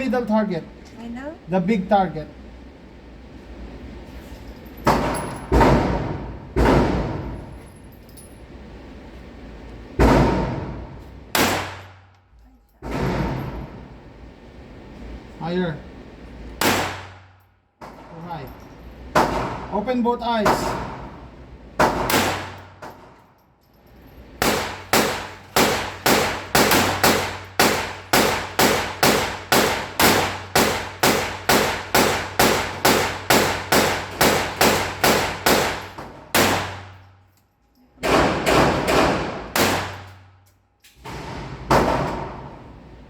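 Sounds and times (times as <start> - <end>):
pistol shots: 10.0 - 12.0, 16.6 - 17.2, 21.8 - 22.9, 24.4 - 37.0, 38.0 - 40.2.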